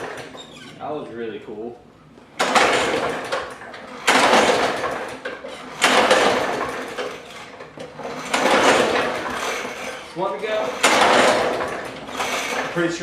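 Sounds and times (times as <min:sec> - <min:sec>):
recoil starter pulled: 0:02.4 - 0:13.0.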